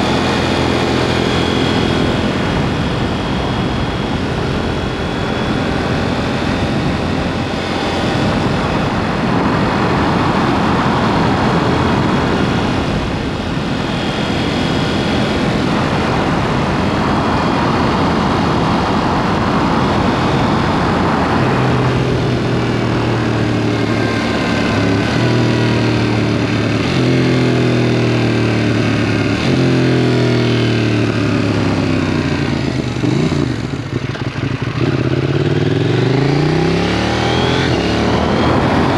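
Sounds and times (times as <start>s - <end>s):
motorcycle engine accelerating: 0.0s - 38.9s
rushing ride noise: 34.5s - 38.9s.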